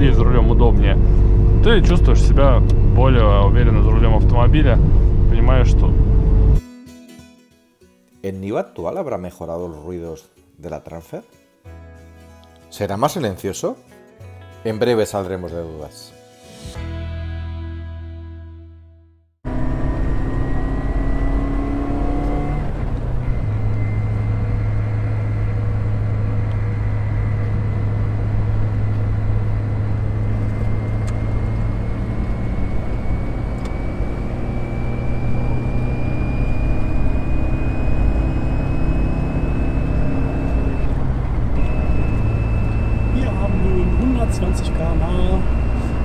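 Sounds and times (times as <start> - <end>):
engine and road noise: 0.0 - 6.6, 19.4 - 46.0
high gear whine: 0.0 - 6.6, 19.5 - 46.0.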